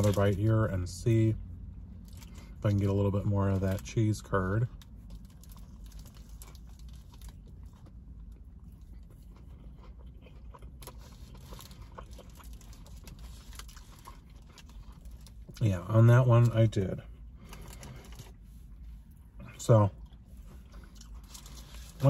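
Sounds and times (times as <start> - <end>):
person biting and chewing burger: 4.7 - 15.6, 20.0 - 22.0.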